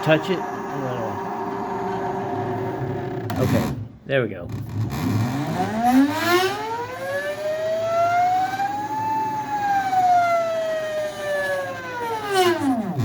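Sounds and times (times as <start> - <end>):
electric motor whining: 0.0 - 3.9.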